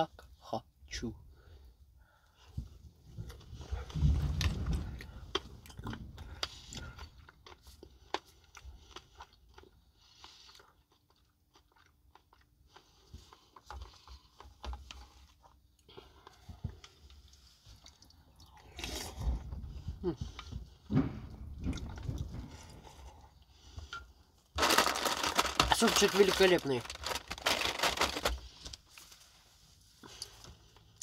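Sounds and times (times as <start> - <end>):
chewing broccoli wet crunching: 4.4 - 19.3.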